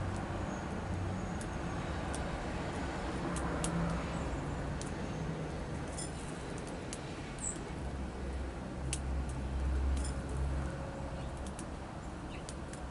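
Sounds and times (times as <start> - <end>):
songbirds chirping: 4.0 - 7.8, 11.0 - 12.9.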